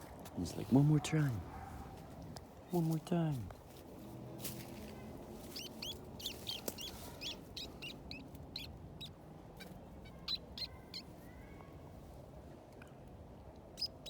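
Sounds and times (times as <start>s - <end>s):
small birds chirping: 4.6s - 11.8s, 13.8s - 14.0s.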